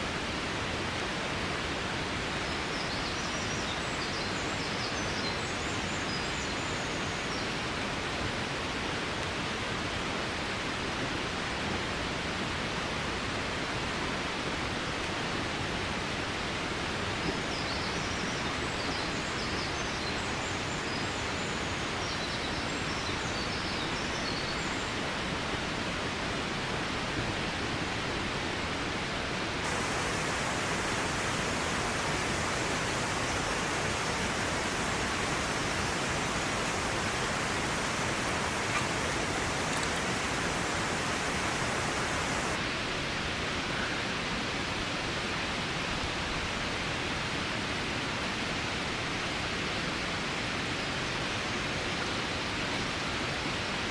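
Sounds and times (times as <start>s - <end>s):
water rushing: 29.4s - 42.6s
faint bird chirps: 29.7s - 42.6s.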